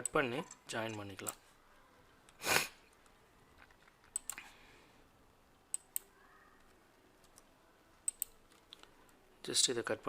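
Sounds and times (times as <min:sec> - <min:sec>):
computer mouse clicks: 0:02.2 - 0:04.5, 0:05.7 - 0:09.2.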